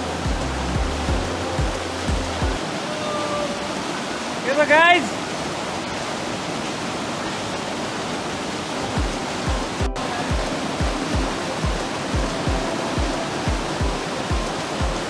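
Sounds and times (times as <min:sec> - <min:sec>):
music with deep kick drum: 0:00.0 - 0:02.6, 0:09.0 - 0:15.0
flowing water: 0:00.0 - 0:15.0.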